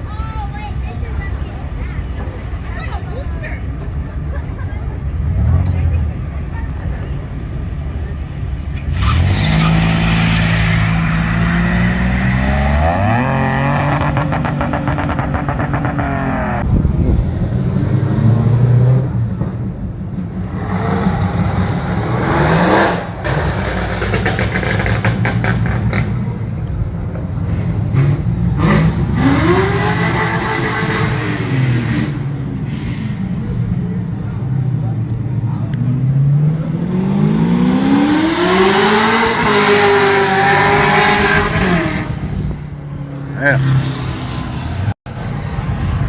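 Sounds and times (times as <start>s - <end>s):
car engines revving: 0.0s - 46.0s.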